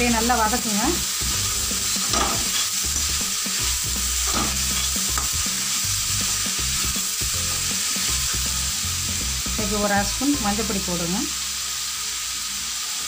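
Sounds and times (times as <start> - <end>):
vegetables sizzling in oil: 0.0 - 13.0
metal spatula stirring and scraping: 1.1 - 8.6.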